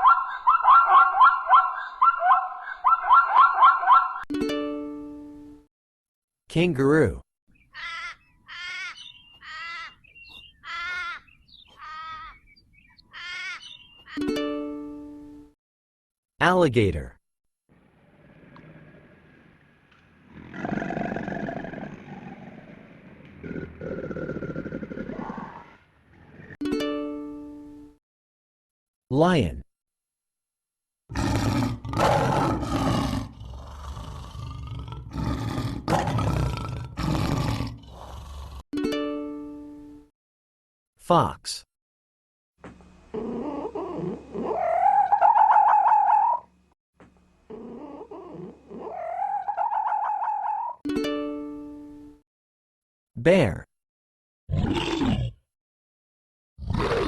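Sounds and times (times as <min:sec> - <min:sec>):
harsh animal calls: 0:07.7 - 0:12.4, 0:13.0 - 0:14.2, 0:20.3 - 0:26.6, 0:43.1 - 0:46.5, 0:47.5 - 0:50.8
lion roaring: 0:20.2 - 0:26.6, 0:31.1 - 0:38.6, 0:47.5 - 0:50.6, 0:54.5 - 0:55.4, 0:56.6 - 0:57.0.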